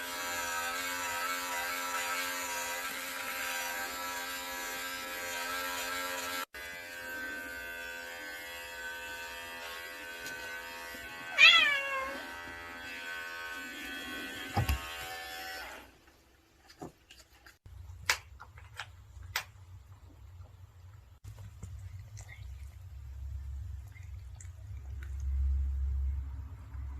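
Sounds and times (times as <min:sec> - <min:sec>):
electric hair clippers buzzing: 0:00.0 - 0:15.9
cat meowing: 0:11.3 - 0:12.2.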